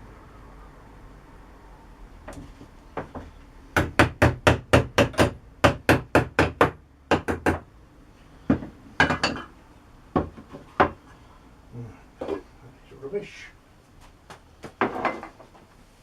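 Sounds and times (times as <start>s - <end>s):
hammer tapping on hard object: 3.0s - 7.6s, 10.2s - 11.0s.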